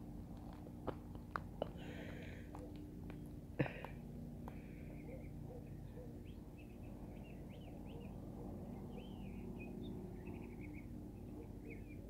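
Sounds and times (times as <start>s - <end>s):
low steady hum: 0.0s - 12.0s
small birds chirping: 4.4s - 12.0s.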